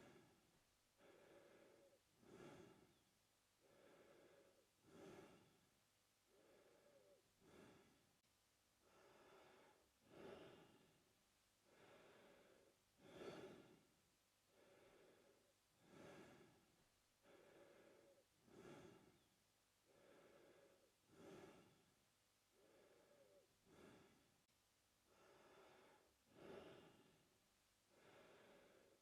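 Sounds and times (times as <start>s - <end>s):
man breathing through mouth: 1.0s - 3.0s, 3.6s - 5.6s, 6.3s - 8.0s, 11.7s - 13.8s, 14.5s - 16.6s, 17.2s - 19.3s, 19.9s - 21.9s, 22.6s - 24.3s, 25.1s - 27.2s.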